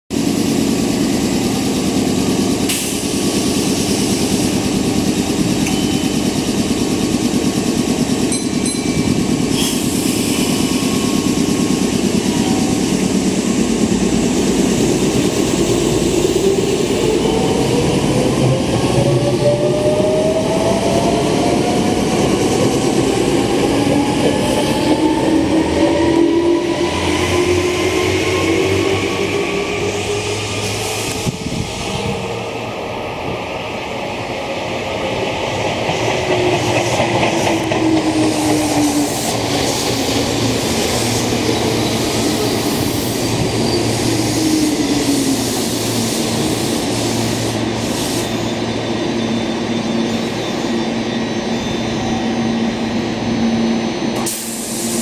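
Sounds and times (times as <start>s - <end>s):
train rumbling: 0.1s - 55.0s.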